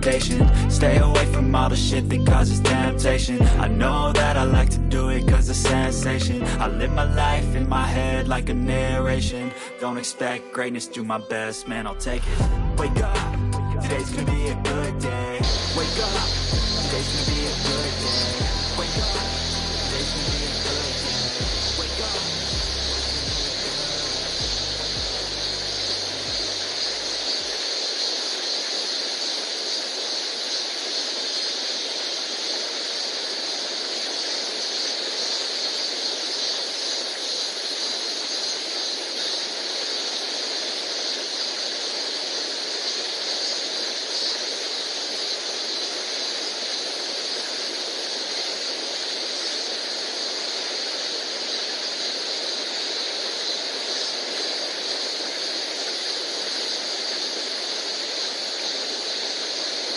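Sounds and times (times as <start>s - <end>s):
stream water rushing over rocks: 15.4s - 59.9s.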